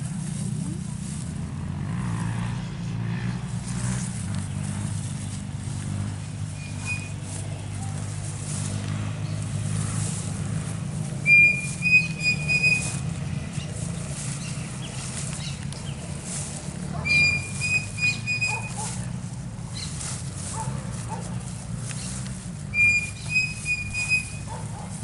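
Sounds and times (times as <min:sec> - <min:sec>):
steady low rumble: 0:00.0 - 0:25.0
short high whistles: 0:06.6 - 0:07.3, 0:11.2 - 0:13.1, 0:17.1 - 0:18.9, 0:22.7 - 0:24.5.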